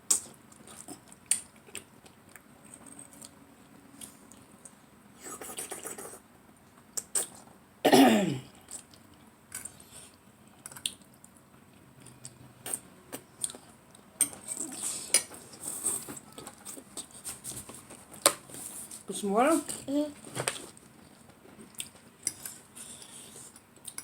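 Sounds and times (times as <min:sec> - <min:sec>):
chewing: 0:00.1 - 0:02.5, 0:08.6 - 0:17.2, 0:20.6 - 0:24.0.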